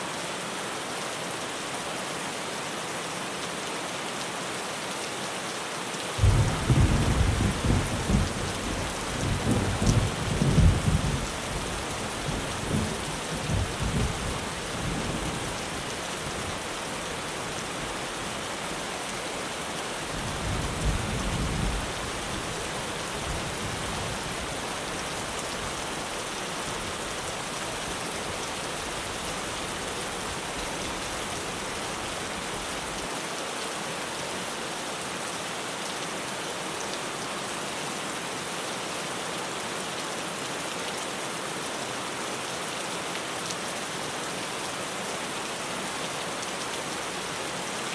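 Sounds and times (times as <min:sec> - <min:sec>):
rain on a tin roof: 0:00.0 - 0:47.9
thunder rumbling: 0:06.2 - 0:11.3.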